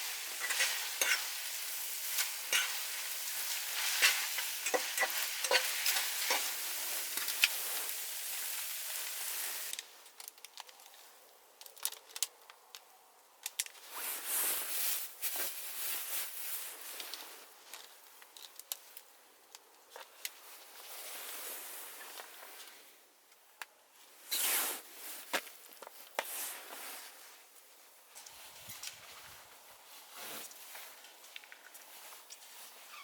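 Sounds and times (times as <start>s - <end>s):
food sizzling in a pan: 0.0s - 9.8s
campfire crackles: 0.0s - 14.2s
stirring clicks and scrapes: 0.3s - 1.4s, 2.0s - 7.6s.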